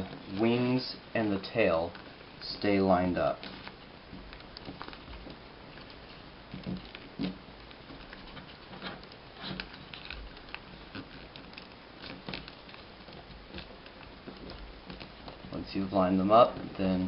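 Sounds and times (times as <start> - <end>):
paper rustling and crackling: 0.0 - 17.0.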